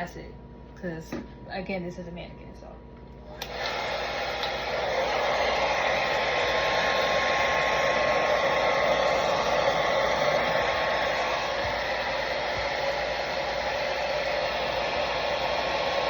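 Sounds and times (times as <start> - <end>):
blow dryer rush of air: 3.3 - 16.0.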